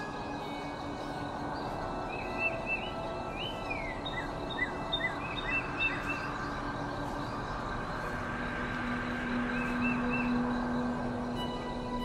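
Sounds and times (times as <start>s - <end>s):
ambient drone: 0.0s - 12.0s
birds chirping: 0.0s - 12.0s.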